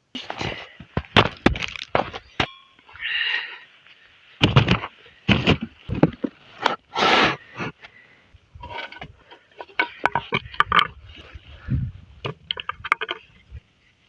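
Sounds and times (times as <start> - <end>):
sharp cracks and knocks: 1.0 - 2.5.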